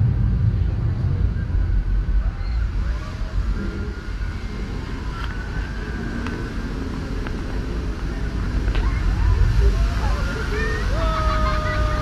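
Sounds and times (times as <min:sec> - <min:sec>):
tram rumbling: 0:00.0 - 0:12.0.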